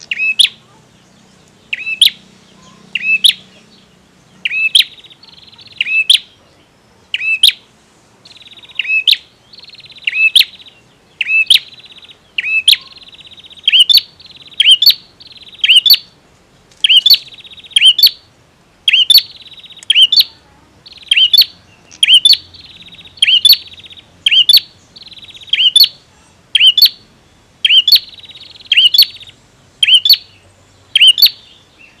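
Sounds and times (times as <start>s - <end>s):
bird sharp piercing notes: 0.0s - 0.6s, 1.7s - 3.6s, 4.4s - 6.3s, 7.1s - 7.6s, 8.3s - 16.1s, 16.8s - 18.3s, 18.9s - 26.0s, 26.6s - 27.0s, 27.6s - 31.5s
buzzy pulsed bird trill: 1.7s - 16.2s, 16.8s - 32.0s.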